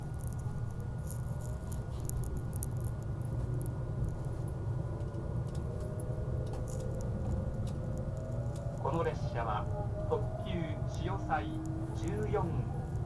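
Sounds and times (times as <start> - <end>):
faint rising whine: 3.3 - 13.0.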